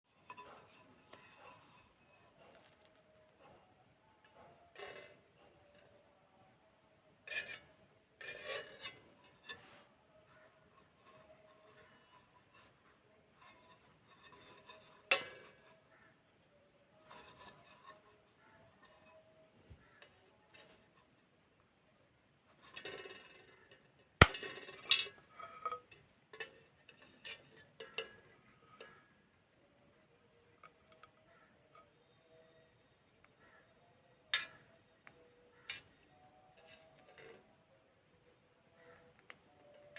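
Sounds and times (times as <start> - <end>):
pottery being crushed: 24.2 - 24.5.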